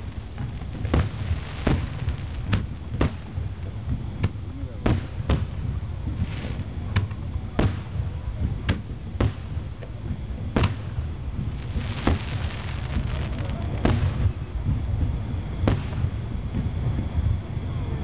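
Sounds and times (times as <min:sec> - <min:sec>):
crackling spray of sparks: 0:00.0 - 0:14.7
firework shells bursting: 0:00.0 - 0:16.8
low rumble: 0:00.0 - 0:18.0.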